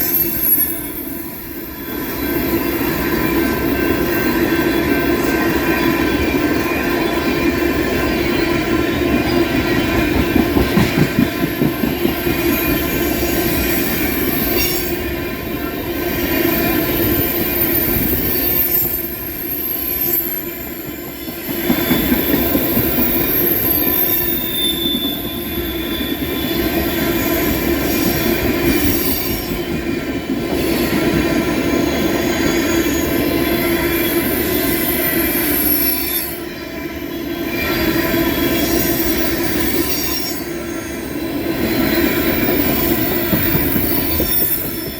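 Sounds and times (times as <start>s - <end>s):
train wheels squealing on rails: 0.0s - 44.9s
wheels clacking over rail joints: 4.4s - 14.1s.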